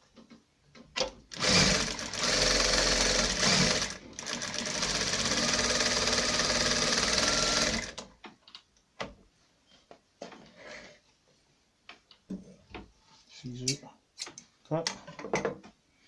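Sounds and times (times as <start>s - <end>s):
industrial sewing machine stitching: 1.3s - 8.0s.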